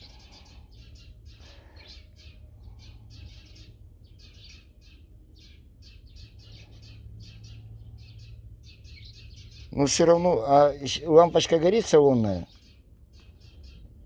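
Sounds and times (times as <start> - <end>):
steady low hum: 0.0 - 11.4
small birds chirping: 0.0 - 14.0.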